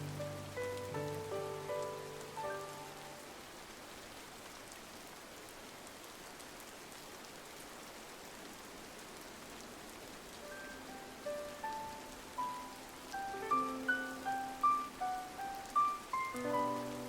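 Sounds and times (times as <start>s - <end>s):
rain drop ticks: 0.0s - 3.3s, 10.0s - 17.0s
rain on a window: 0.0s - 17.0s.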